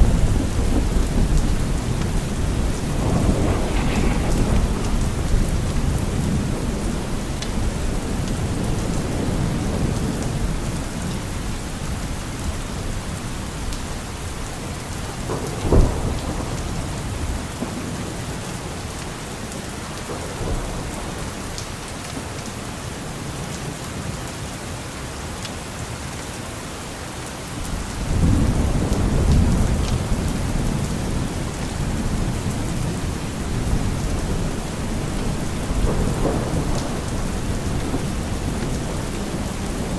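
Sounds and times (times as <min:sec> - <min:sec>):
sharp thunder crack: 0:00.0 - 0:10.0
thunder rolling: 0:00.0 - 0:12.1, 0:12.9 - 0:18.9, 0:27.7 - 0:39.9
steady rain: 0:00.0 - 0:39.9.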